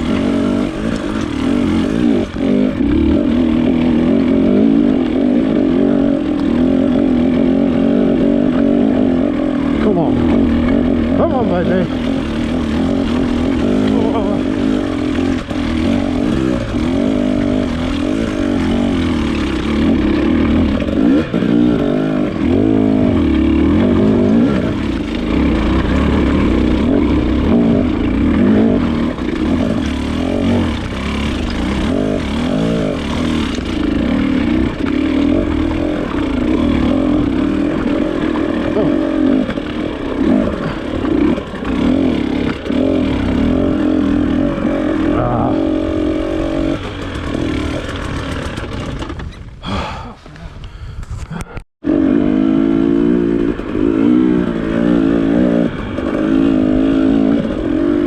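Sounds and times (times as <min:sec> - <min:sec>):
motorcycle engine revving: 0:00.0 - 0:50.0, 0:51.4 - 0:58.0.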